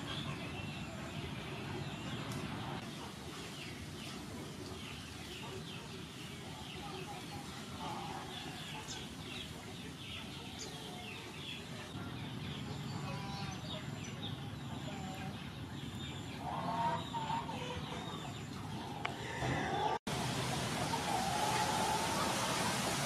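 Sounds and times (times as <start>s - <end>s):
birds chirping: 0.0s - 23.0s
steady background hiss: 20.1s - 23.0s.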